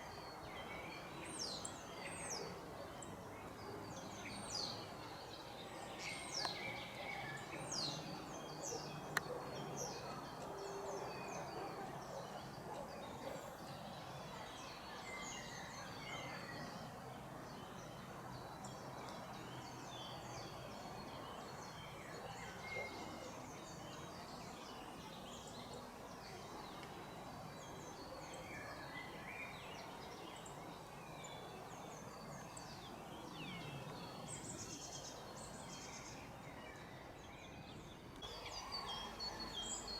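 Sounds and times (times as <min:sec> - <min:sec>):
faint background hiss: 0:00.0 - 0:39.9
songbirds chirping: 0:00.0 - 0:39.9.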